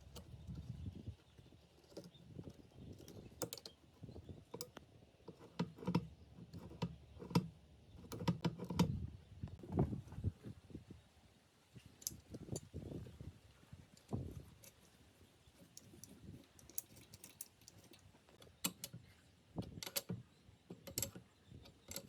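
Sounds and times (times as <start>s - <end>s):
parts and tools clicking: 1.8s - 3.8s, 15.6s - 22.0s.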